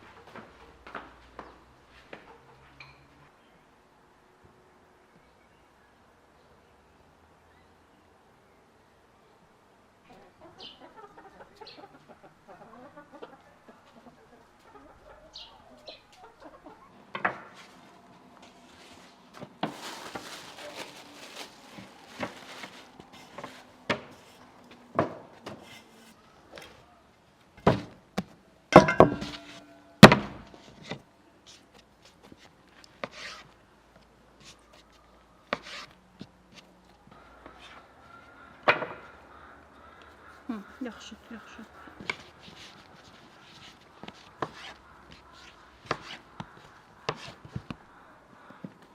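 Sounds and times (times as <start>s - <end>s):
chickens clucking: 1.9s - 3.0s, 10.0s - 18.0s, 37.1s - 48.9s
sharp knocks and clatters: 27.6s - 30.6s.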